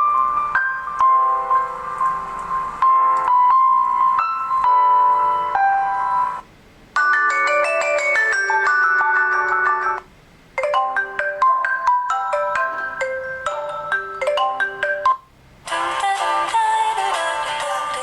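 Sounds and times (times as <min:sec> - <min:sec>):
marimba-like phone ringtone: 0:07.0 - 0:15.3.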